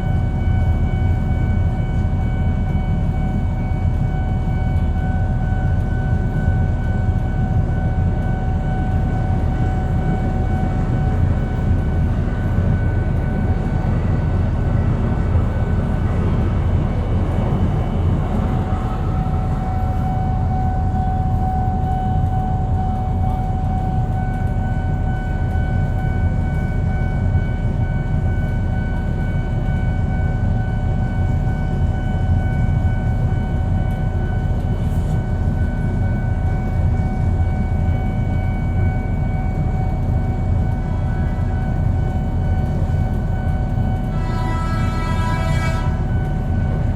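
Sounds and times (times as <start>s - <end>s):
train rumbling past: 0.0s - 46.9s
steady high tone: 7.8s - 28.4s.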